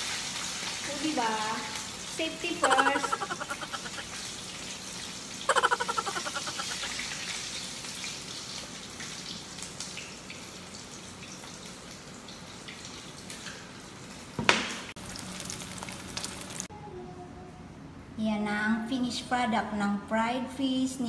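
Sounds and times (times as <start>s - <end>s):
fish sizzling in hot oil: 0.0s - 2.1s
oil crackling spatters: 15.0s - 16.7s.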